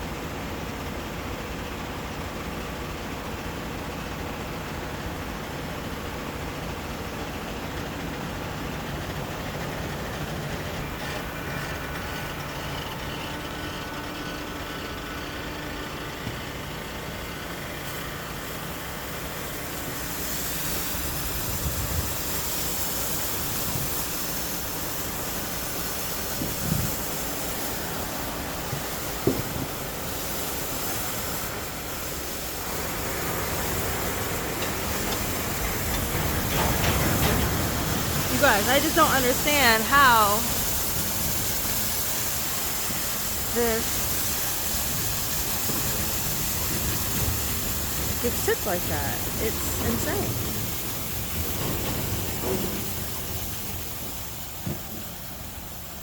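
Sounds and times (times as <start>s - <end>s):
truck engine and hydraulics running: 0.0s - 56.0s
wood chips pouring from trailer: 0.0s - 56.0s
faint steady whine: 38.3s - 40.6s.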